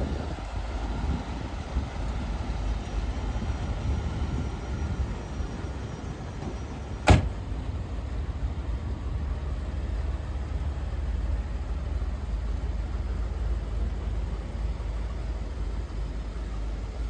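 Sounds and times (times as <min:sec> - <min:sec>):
car engine idling: 0:00.0 - 0:17.0
sharp loud thump: 0:07.0 - 0:07.4.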